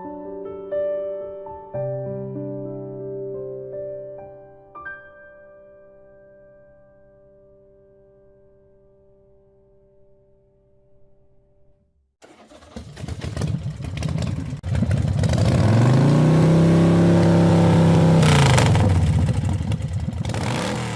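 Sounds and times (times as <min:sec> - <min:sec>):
motorcycle engine revving: 0:12.2 - 0:20.9.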